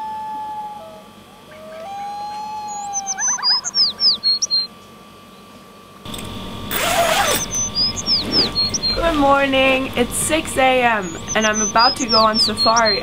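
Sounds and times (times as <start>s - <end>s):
bird whistling and chirping: 0.0s - 4.7s, 6.7s - 9.2s, 10.8s - 13.0s.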